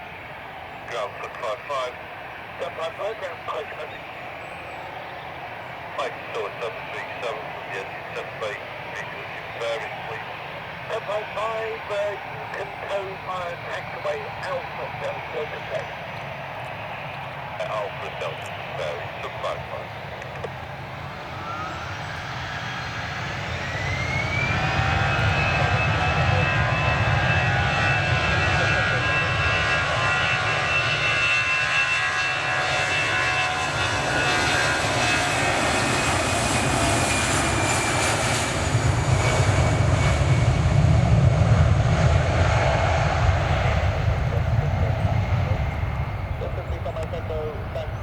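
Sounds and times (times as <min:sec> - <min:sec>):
jet engines whining: 0:00.0 - 0:48.0
deep engine rumble: 0:34.8 - 0:48.0.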